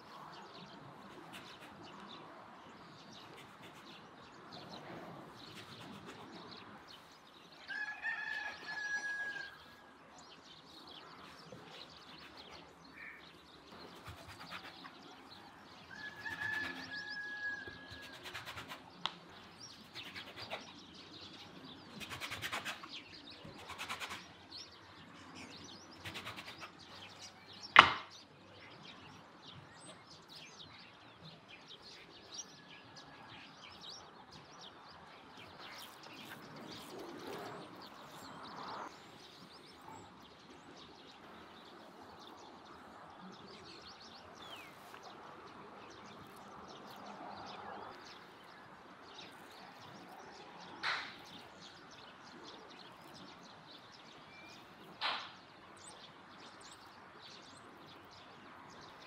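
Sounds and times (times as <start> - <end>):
birds chirping: 0.0 - 59.0
sharp knock: 27.7 - 28.1.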